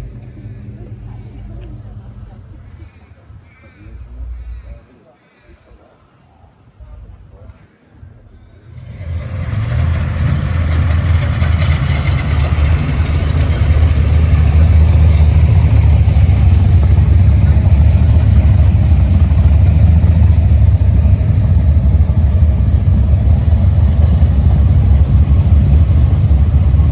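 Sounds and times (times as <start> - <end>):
engine starting and running: 0.0 - 3.0, 8.6 - 26.9.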